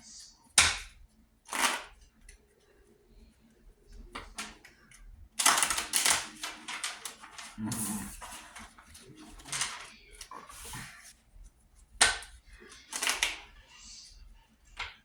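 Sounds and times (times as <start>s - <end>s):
rapid card clicks: 0.6s - 2.1s, 5.4s - 10.3s, 12.0s - 13.5s
playing cards flicking: 0.6s - 2.3s, 5.4s - 8.7s, 12.0s - 13.6s.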